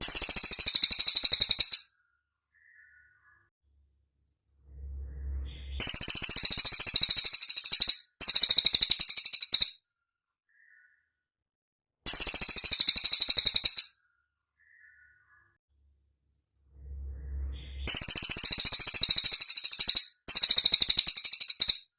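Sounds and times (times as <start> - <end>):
songbird rattling trills: 0.0 - 1.9, 5.5 - 9.8, 12.1 - 13.9, 17.7 - 21.9
brief low rumble: 3.8 - 6.0, 16.3 - 18.0.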